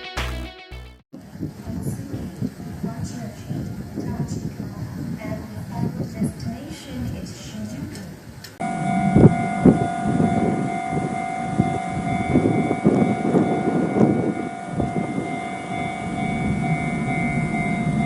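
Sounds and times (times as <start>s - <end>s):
electric train whine: 8.6s - 18.0s.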